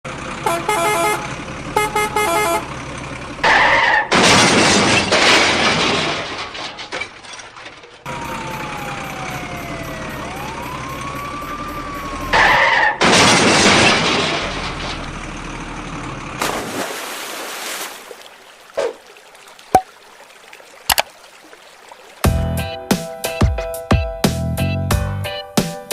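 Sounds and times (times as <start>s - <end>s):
cartoon crash with shattering: 3.4s - 7.1s, 12.4s - 14.8s
wailing siren: 8.1s - 13.0s.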